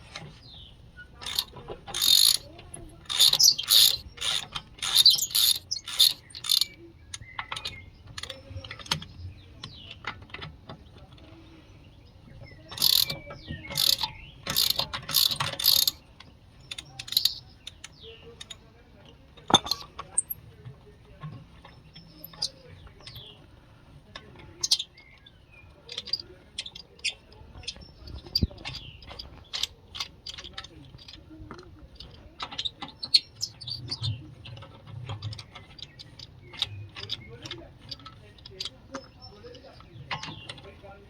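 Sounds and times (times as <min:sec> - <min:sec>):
ratchet wrench clicking: 0:01.2 - 0:06.8, 0:12.7 - 0:16.0, 0:16.7 - 0:18.6.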